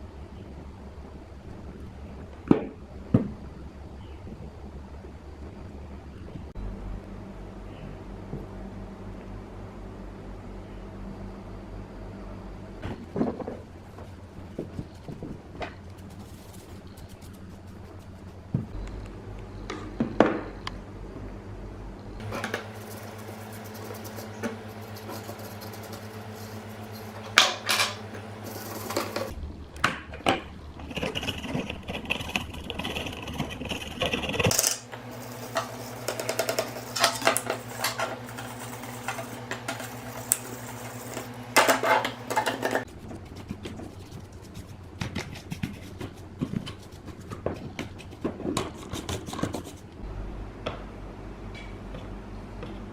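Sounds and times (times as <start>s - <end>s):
low electrical hum: 0.0s - 52.9s.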